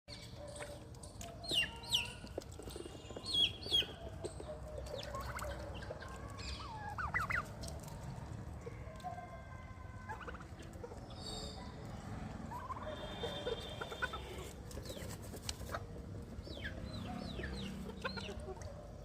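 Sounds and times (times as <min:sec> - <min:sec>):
poultry calling: 0:04.8 - 0:07.6, 0:12.5 - 0:15.9, 0:16.6 - 0:18.7.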